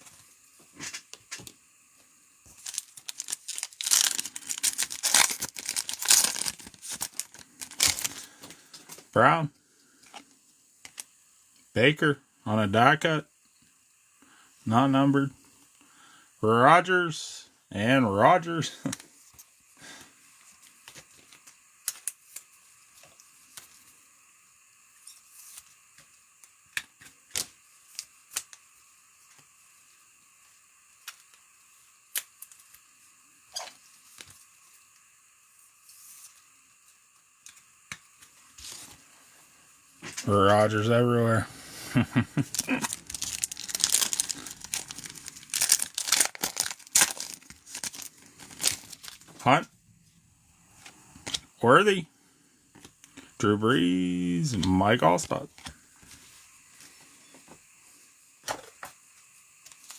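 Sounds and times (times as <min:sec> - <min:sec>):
wrapper crinkling and tearing: 0:02.5 - 0:08.4, 0:42.4 - 0:49.4.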